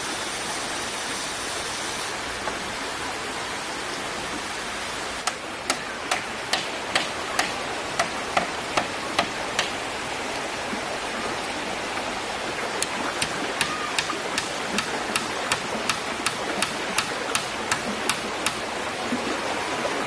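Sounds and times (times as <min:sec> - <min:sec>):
rushing stream water: 0:00.0 - 0:20.0.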